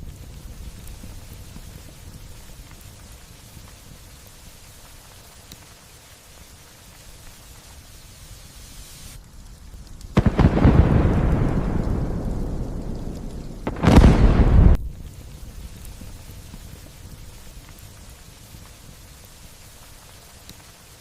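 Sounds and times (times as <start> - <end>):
light rain falling: 0.0 - 21.0
thunder clap rumbling: 10.1 - 17.4.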